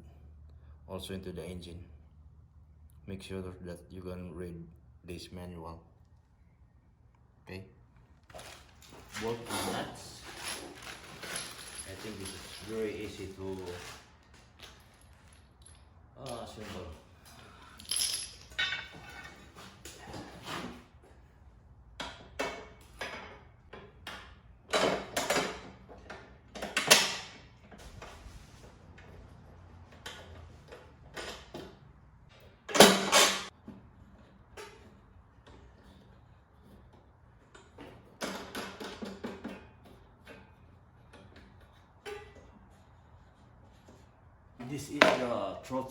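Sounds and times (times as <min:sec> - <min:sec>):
clicks knocks and rattles of parts: 0:29.9 - 0:42.5.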